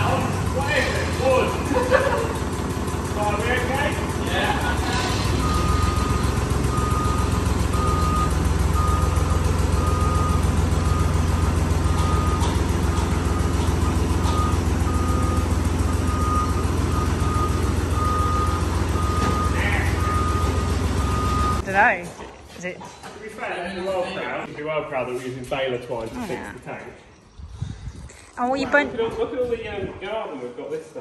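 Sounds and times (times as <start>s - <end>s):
vehicle engine running: 0.0s - 22.0s
reversing alarm beeping: 5.2s - 21.7s.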